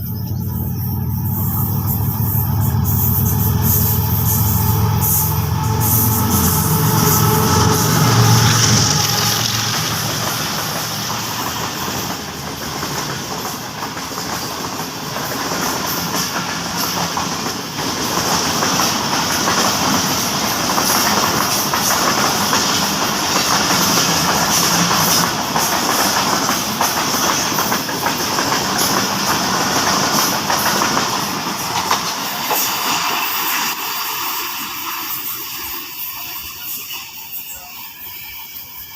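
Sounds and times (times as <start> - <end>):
train rushing past: 0.0 - 38.9
wheels clattering over rail joints: 5.7 - 33.8.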